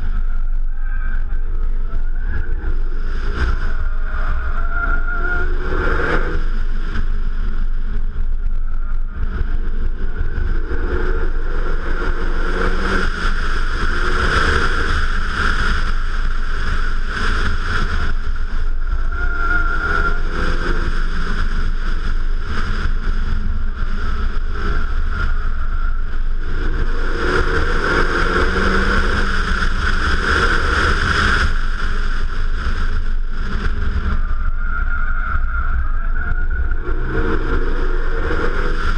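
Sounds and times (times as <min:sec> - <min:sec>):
car engine revving: 0:00.0 - 0:38.9
wind rumble on microphone: 0:00.0 - 0:38.9.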